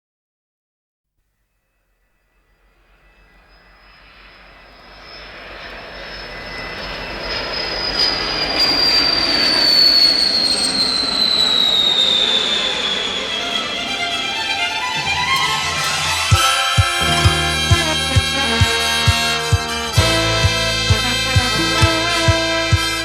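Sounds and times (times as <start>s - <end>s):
jet engine with turbine whine: 2.5s - 20.4s.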